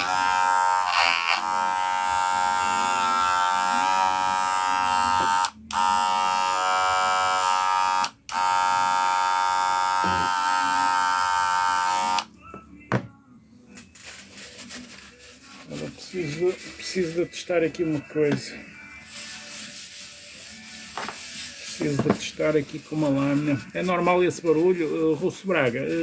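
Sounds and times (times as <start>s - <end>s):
electric hair clipper buzzing: 0.0s - 12.3s
man talking: 10.0s - 10.3s.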